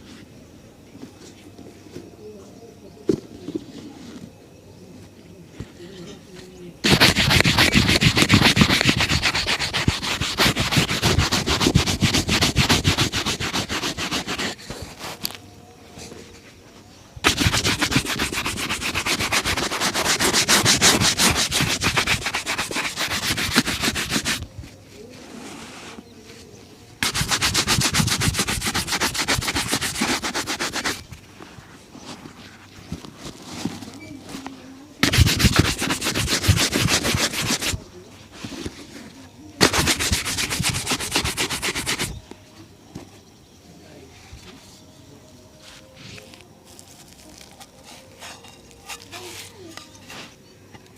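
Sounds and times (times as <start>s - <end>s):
shoe being buffed: 6.8s - 15.2s, 17.2s - 24.4s, 27.0s - 31.1s, 35.0s - 37.8s, 39.6s - 42.1s.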